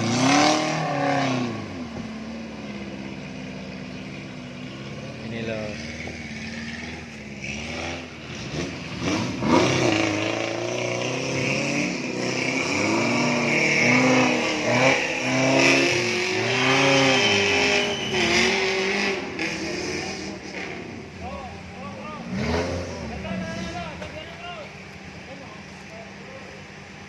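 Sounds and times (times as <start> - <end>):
off-road vehicle engine revving: 0.0 - 27.0.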